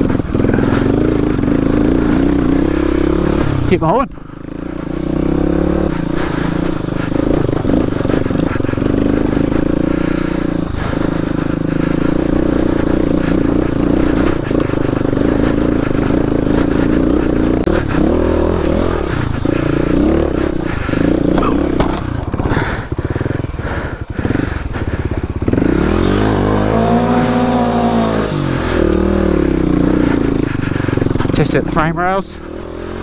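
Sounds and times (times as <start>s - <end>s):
dirt bike engine running: 0.0s - 33.0s.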